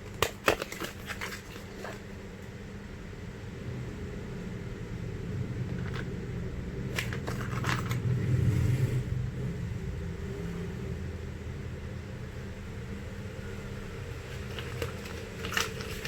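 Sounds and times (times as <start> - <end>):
crackly packaging rustle: 0.0 - 2.5, 6.9 - 8.1, 14.0 - 16.0
steady low hum: 0.0 - 16.0.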